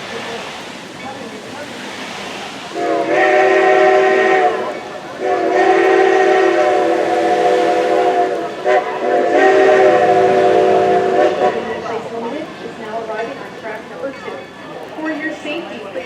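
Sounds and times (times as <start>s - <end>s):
steam whistle blasts: 2.7s - 11.8s.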